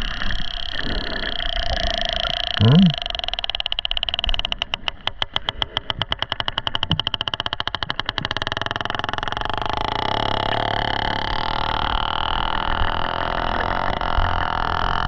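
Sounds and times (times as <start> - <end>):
whale echolocation clicks: 1.8 - 9.4.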